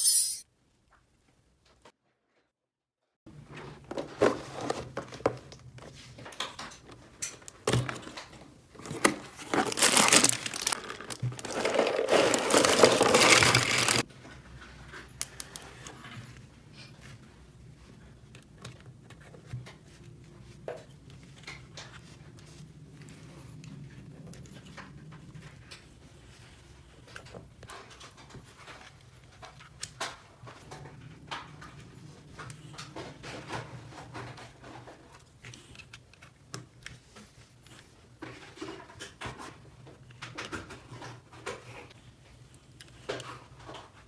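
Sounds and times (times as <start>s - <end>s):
material crinkling and rustling: 7.8s - 14.1s.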